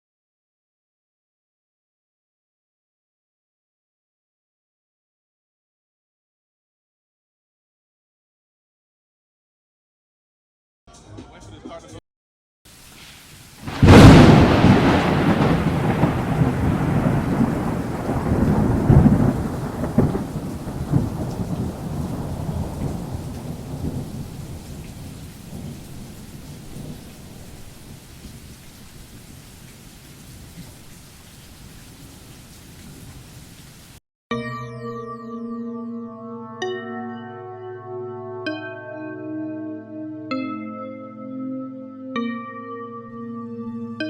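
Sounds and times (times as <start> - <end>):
rain-like hiss: 12.7 - 34.0
thunder rumbling: 13.6 - 29.7.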